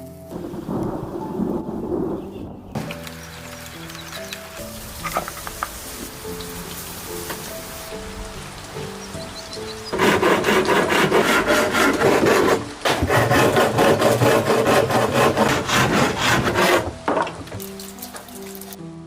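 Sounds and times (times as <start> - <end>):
quiet background music: 0.0 - 19.0
hand tool working wood: 9.9 - 18.4.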